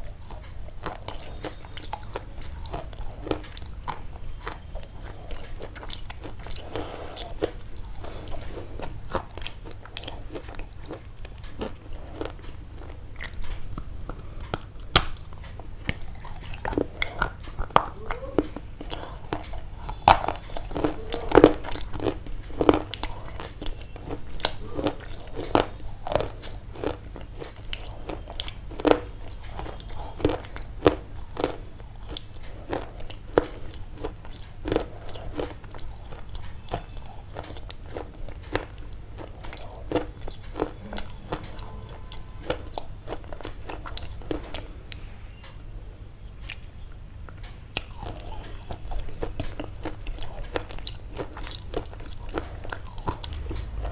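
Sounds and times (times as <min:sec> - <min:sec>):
crunching and chewing: 0:00.0 - 0:53.9
low hum: 0:38.2 - 0:47.4.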